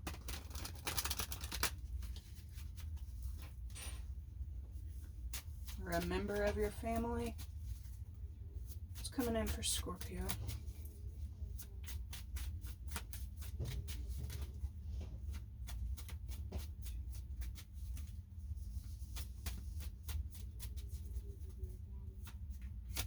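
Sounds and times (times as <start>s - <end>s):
cards being shuffled: 0.0s - 3.6s, 8.7s - 18.2s, 18.8s - 23.0s.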